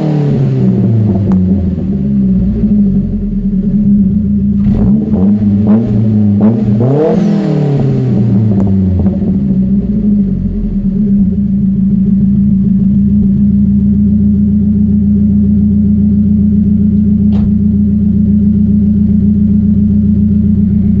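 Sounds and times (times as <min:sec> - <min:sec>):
car engine running steadily: 0:00.0 - 0:21.0
brief click: 0:17.3 - 0:17.6.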